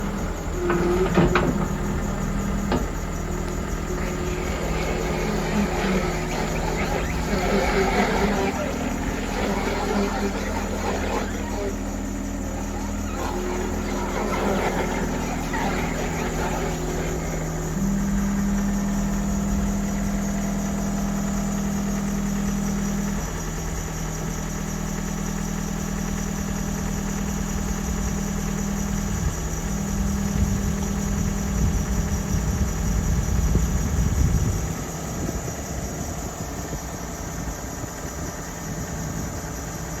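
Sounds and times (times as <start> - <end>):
diesel engine running: 0.0 - 23.1.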